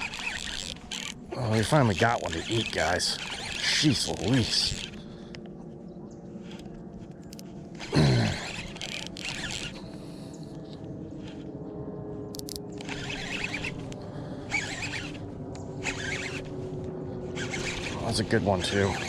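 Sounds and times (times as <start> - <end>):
rasping and splashing bursts: 0.0 - 5.0, 7.8 - 9.9, 14.5 - 15.2, 15.8 - 16.5, 17.4 - 19.0.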